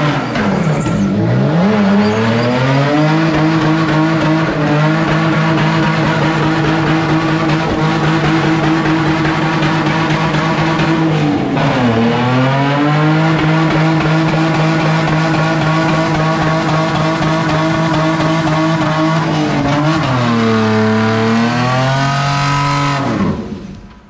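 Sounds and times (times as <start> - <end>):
tyres squealing: 0.0 - 4.3
car engine revving: 0.0 - 24.0.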